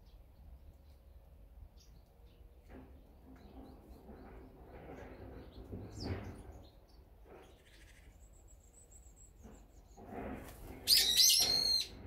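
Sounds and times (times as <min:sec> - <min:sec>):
small birds chirping: 0:00.0 - 0:10.1, 0:10.8 - 0:12.0
loud ringing bird calls: 0:10.8 - 0:12.0.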